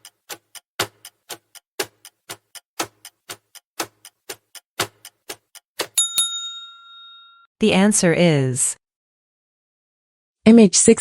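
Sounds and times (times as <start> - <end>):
clock ticking: 0.0 - 6.3.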